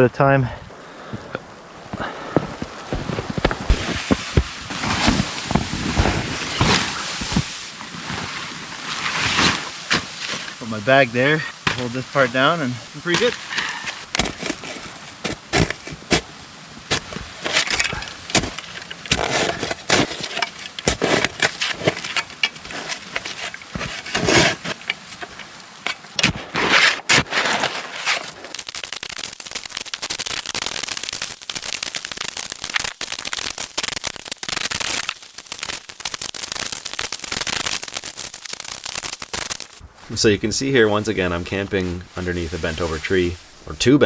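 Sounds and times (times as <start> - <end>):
snow crunching: 1.8 - 25.5, 26.2 - 44.0
tarp rustling: 2.8 - 25.4, 26.2 - 44.0
dense crackling: 3.0 - 16.0, 28.4 - 44.0.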